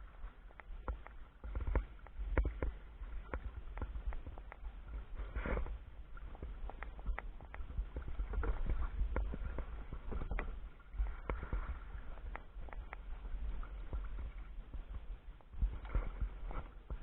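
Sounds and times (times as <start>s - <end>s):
water splashing against kayak hull: 0.0s - 17.0s
wind rumble on microphone: 0.0s - 17.0s.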